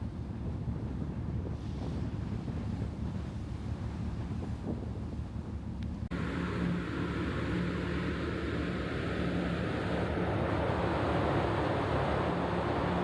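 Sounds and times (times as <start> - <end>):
ferry engine hum: 0.0 - 13.0
faint whine: 6.1 - 13.0
wind and water rushing: 6.1 - 13.0.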